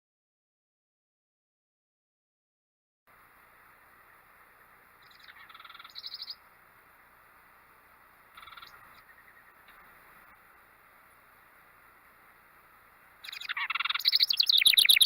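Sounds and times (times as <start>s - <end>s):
faint steady hiss: 3.1s - 15.0s
bird trilled chattering call: 5.0s - 6.4s, 8.3s - 9.8s, 13.2s - 15.0s.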